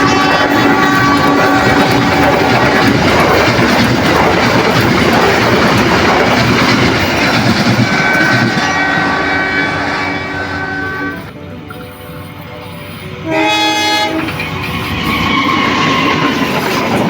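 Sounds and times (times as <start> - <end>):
train wheels clattering on rails: 0.0 - 11.9, 12.6 - 17.0.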